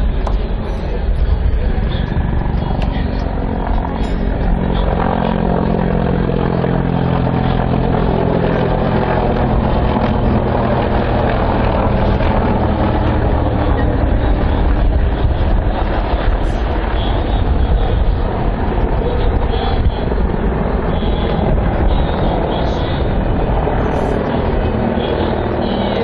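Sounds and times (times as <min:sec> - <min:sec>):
helicopter engine and rotor: 0:00.0 - 0:26.0.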